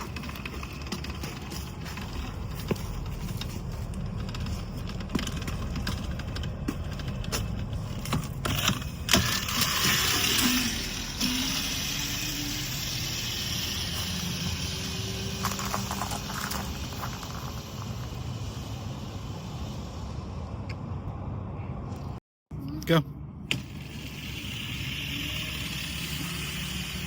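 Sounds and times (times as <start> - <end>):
tyre and wind noise: 0.0 - 20.9
electric motor whine: 9.1 - 18.2, 23.5 - 27.0.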